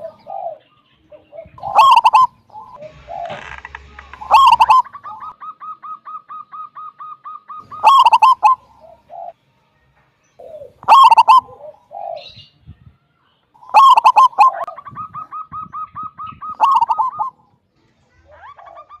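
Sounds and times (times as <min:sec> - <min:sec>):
dove cooing: 0:00.0 - 0:09.4, 0:10.4 - 0:12.5, 0:13.6 - 0:17.4
rapid repeated bird notes: 0:01.6 - 0:09.4, 0:10.4 - 0:12.2, 0:13.5 - 0:17.4.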